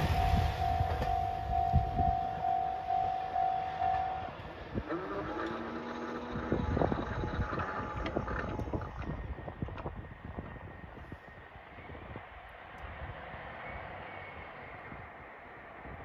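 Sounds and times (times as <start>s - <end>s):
repeated ringing ding: 0.0s - 4.3s
diesel train running past: 0.0s - 16.0s.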